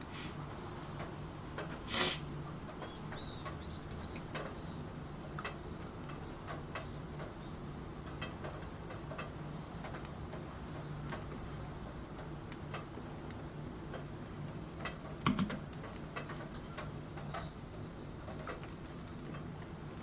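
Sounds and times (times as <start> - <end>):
rain hissing: 0.0 - 0.4, 1.9 - 2.4.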